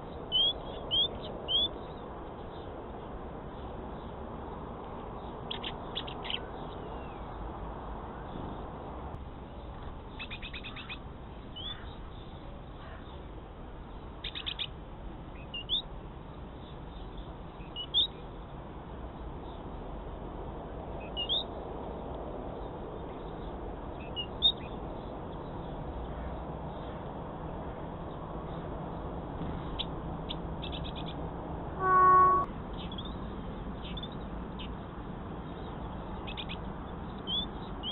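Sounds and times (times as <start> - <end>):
small birds chirping: 5.0 - 7.5, 9.5 - 14.7, 15.3 - 15.9, 28.0 - 31.2, 31.8 - 34.8, 35.4 - 37.9
loud pitched call: 31.8 - 32.5.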